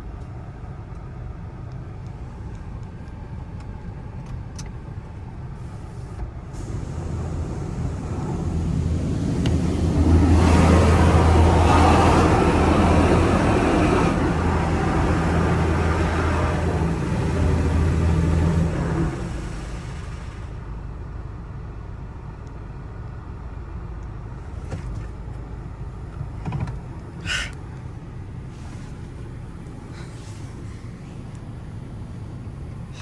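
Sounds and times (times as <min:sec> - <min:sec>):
car wash water spray: 0:05.6 - 0:21.1, 0:24.4 - 0:33.0
low machine hum: 0:05.8 - 0:21.3.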